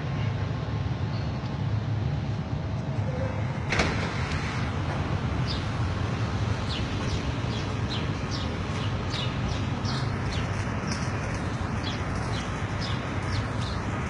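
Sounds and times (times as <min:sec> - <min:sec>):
small birds chirping: 0:06.5 - 0:14.0.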